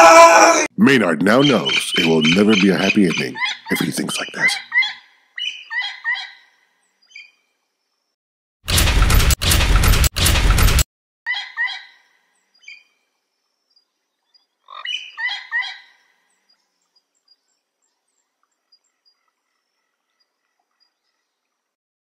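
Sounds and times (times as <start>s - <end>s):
bird-like chirps: 1.2s - 7.4s, 13.6s - 21.3s
loud crash: 8.7s - 10.8s.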